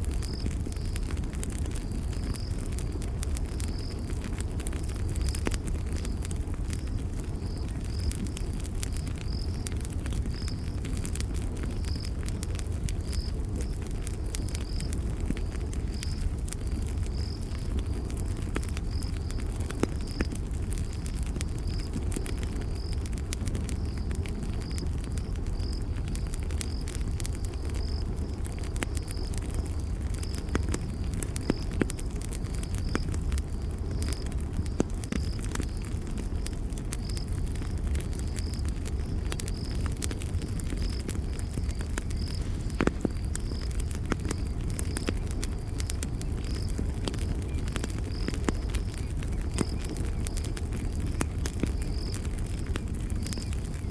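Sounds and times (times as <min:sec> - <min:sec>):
campfire crackling and popping: 0:00.0 - 0:53.9
cricket chirping: 0:00.0 - 0:53.9.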